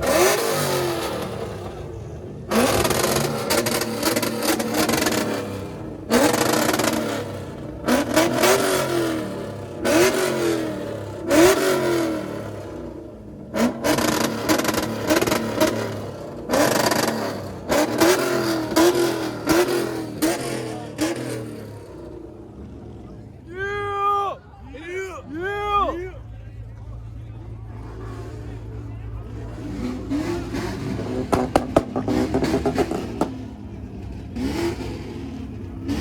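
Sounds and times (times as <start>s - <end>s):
car engine revving: 0.0s - 23.5s, 26.2s - 36.0s.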